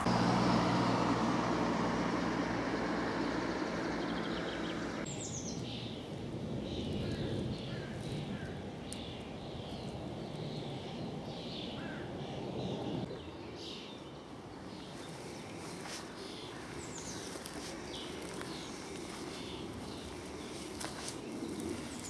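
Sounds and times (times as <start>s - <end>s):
low rumbling noise: 0.0s - 8.9s
songbirds chirping and singing: 1.1s - 22.0s.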